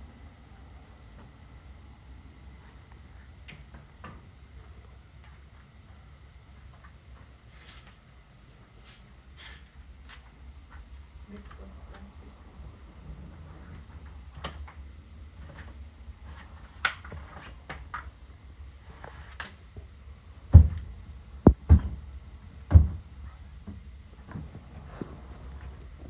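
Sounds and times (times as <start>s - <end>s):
heavy thumps: 21.5s - 22.1s.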